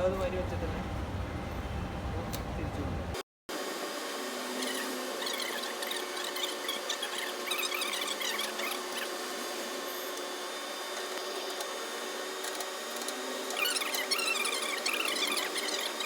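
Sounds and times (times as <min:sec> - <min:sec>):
metal squeaking and scraping: 0:04.6 - 0:09.2, 0:13.5 - 0:16.0.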